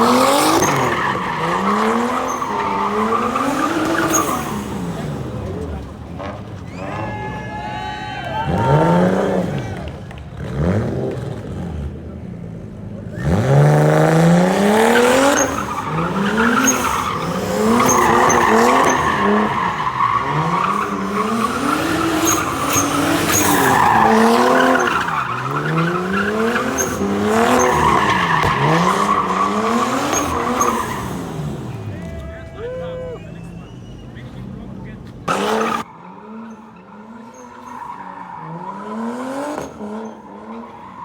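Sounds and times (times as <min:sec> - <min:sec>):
car engine revving hard: 0:00.0 - 0:05.6, 0:08.5 - 0:12.0, 0:13.2 - 0:31.9, 0:38.4 - 0:40.7
tyres squealing: 0:15.0 - 0:35.9.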